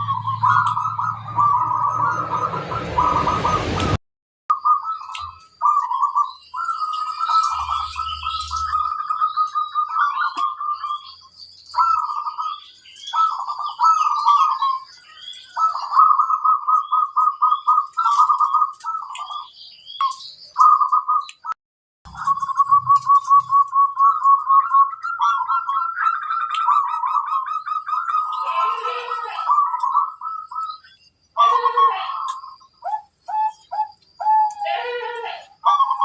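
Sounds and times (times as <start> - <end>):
doves cooing: 0.0 - 3.2, 5.6 - 19.4, 22.1 - 30.8, 31.4 - 36.0
thin high tone: 0.0 - 4.0.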